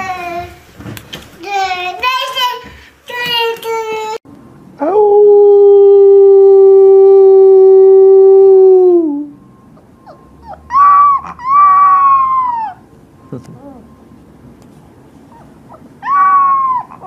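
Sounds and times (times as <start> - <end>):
puppy howling: 4.8 - 12.9, 15.3 - 17.0.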